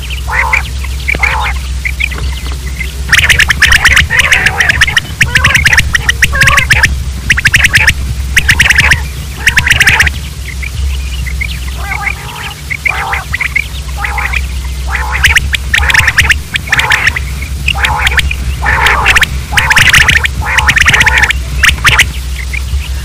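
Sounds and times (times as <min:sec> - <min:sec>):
quail calling: 0:00.0 - 0:23.0
steady low hum: 0:00.0 - 0:23.0.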